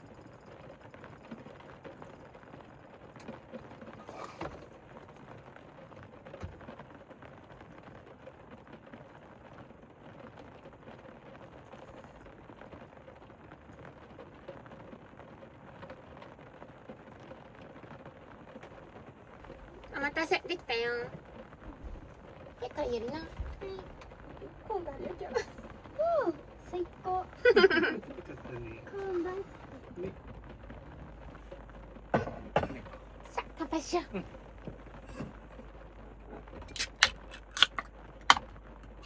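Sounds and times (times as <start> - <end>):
rain on a van roof: 0.0 - 39.0
faint knocks: 19.4 - 36.7.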